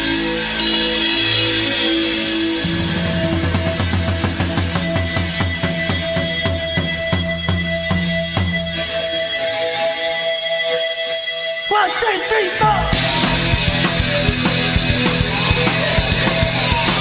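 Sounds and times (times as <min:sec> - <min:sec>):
drums and bass repeated strikes: 0:00.0 - 0:09.1, 0:12.7 - 0:17.0.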